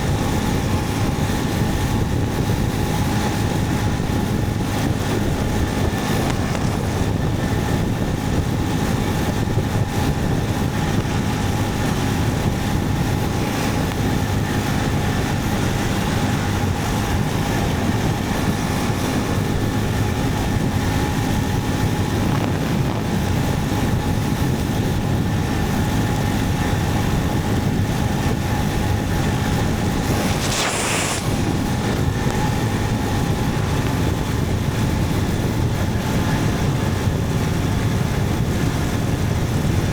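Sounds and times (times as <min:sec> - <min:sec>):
motorcycle engine running: 0:00.0 - 0:39.9
wind noise: 0:00.0 - 0:39.9
brief hiss: 0:30.2 - 0:31.6.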